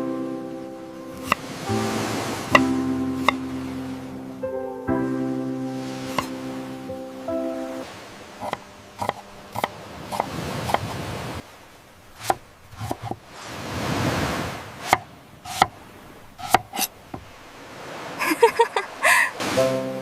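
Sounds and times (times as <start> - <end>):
knife chopping on cutting board: 1.2 - 1.4, 2.5 - 3.4, 6.1 - 6.3, 8.4 - 10.9, 12.2 - 13.2, 14.9 - 15.7, 16.4 - 17.3.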